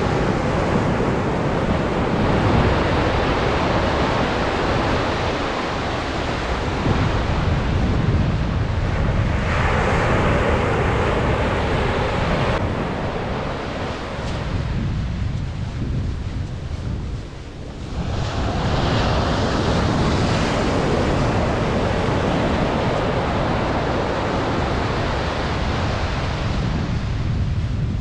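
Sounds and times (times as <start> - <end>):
surf breaking on beach: 0.0 - 15.8, 17.7 - 27.4
wave washing in: 0.0 - 28.0
wind rumbling on microphone: 0.0 - 28.0.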